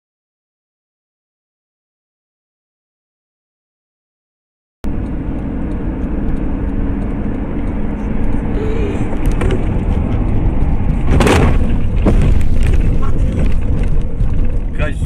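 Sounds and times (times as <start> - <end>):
vehicle road and engine rumble: 4.8 - 15.0.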